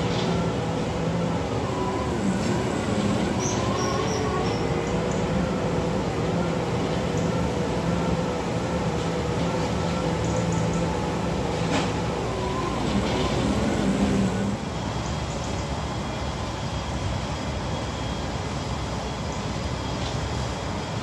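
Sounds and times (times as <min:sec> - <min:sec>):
engine humming: 0:00.0 - 0:14.8.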